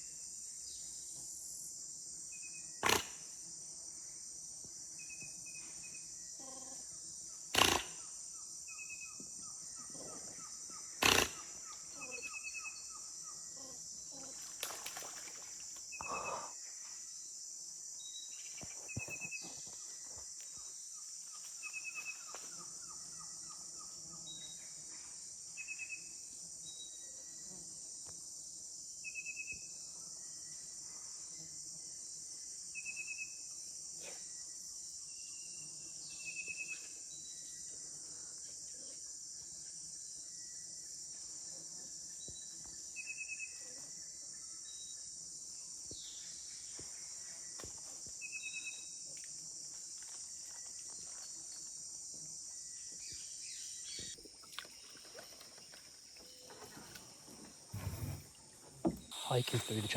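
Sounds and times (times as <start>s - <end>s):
insect chorus buzzing: 0.0s - 59.9s.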